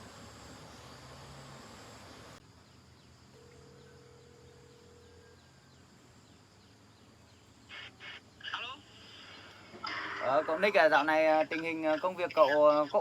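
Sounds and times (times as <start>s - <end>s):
hiss: 0.0s - 2.4s, 7.7s - 10.2s.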